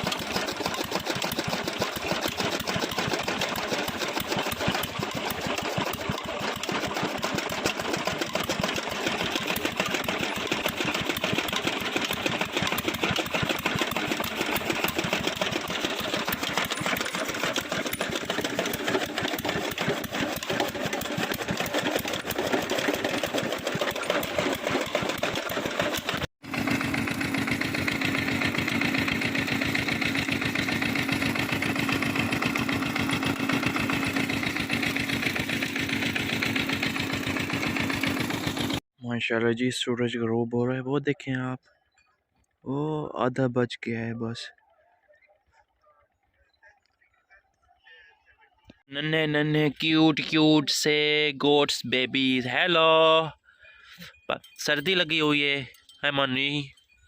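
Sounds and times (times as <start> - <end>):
chaff-cutter mechanical clatter: 0.0 - 38.8, 48.7 - 57.0
engine hum with held tone: 0.0 - 38.9.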